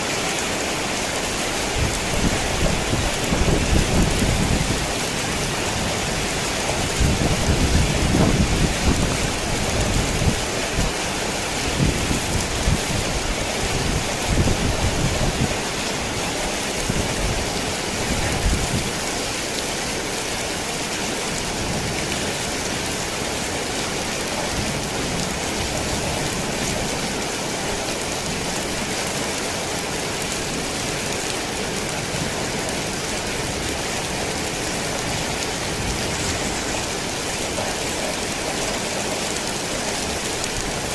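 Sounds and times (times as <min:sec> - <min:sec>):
heavy rain on a tin roof: 0:00.0 - 0:40.9
thunder rumbling: 0:01.6 - 0:10.8.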